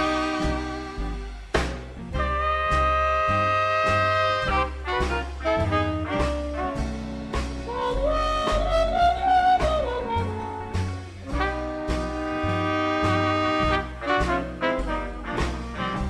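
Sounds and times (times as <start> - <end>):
horn note sliding: 0.0 - 1.6
swing band playing: 0.0 - 16.0.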